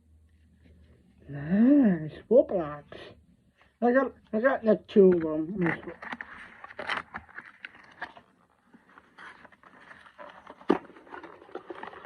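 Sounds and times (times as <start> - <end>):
plastic toys scraping: 5.2 - 12.0.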